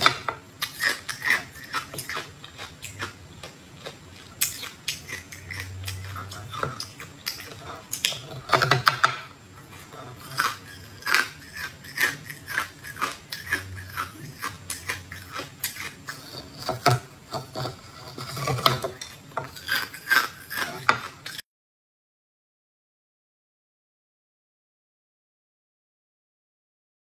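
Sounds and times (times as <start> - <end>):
chewing jelly with crackles: 0.0 - 21.4.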